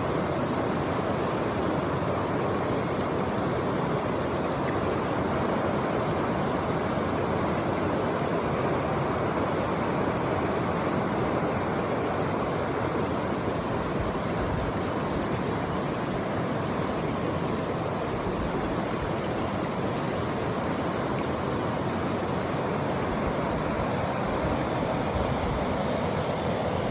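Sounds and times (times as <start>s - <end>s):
river water rushing and babbling: 0.0s - 26.9s.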